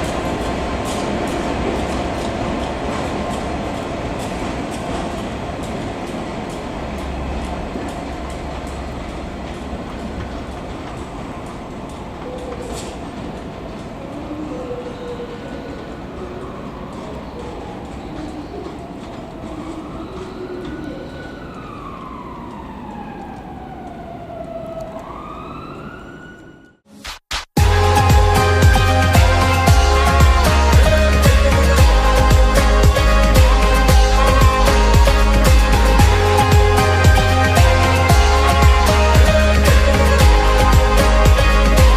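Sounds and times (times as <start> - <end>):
train rumble: 0.0 - 25.2, 27.6 - 41.9
wheels clicking over rail joints: 0.0 - 25.2
emergency siren wailing: 13.8 - 26.9, 27.6 - 41.9.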